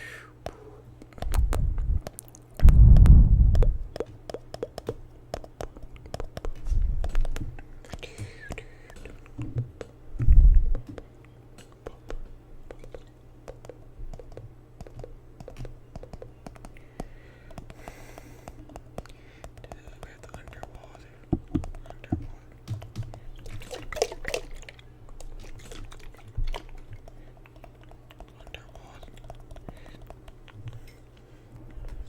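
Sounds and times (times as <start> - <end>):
deep thumps: 1.2 - 4.0, 9.4 - 11.0.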